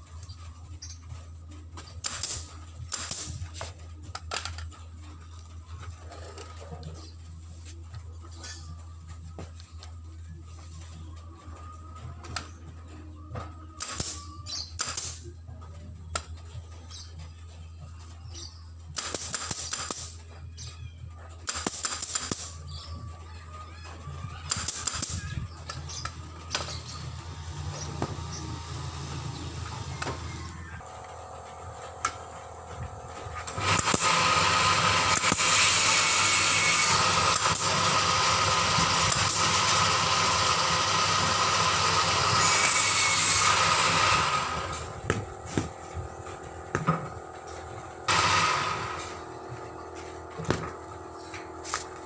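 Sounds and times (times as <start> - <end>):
machine running loudly: 22.0 - 52.0.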